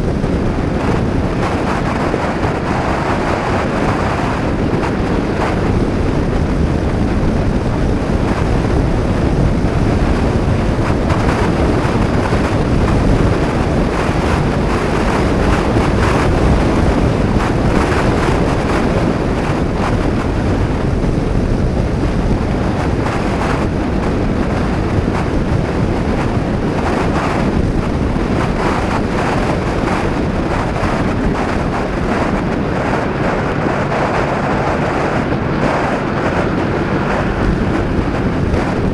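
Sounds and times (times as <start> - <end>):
wind buffeting microphone: 0.0 - 38.9
scooter engine: 30.0 - 38.9.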